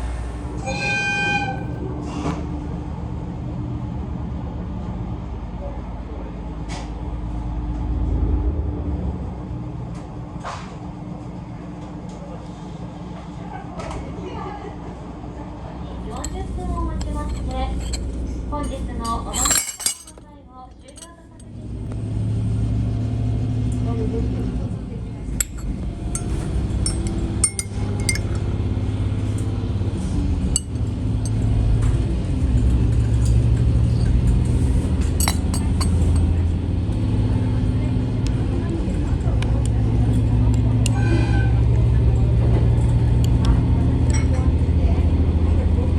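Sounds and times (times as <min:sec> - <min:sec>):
railcar low rumble: 0:00.0 - 0:19.4, 0:21.2 - 0:45.9
glassware and tableware clinking: 0:17.0 - 0:20.2, 0:20.8 - 0:21.5, 0:25.4 - 0:28.4, 0:30.6 - 0:31.4, 0:35.2 - 0:36.3
diesel engine humming: 0:20.8 - 0:41.0.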